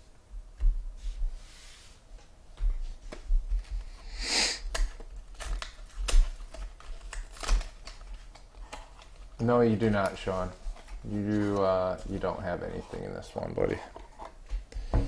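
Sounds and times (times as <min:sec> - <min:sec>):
packs rustling: 0:04.8 - 0:14.7.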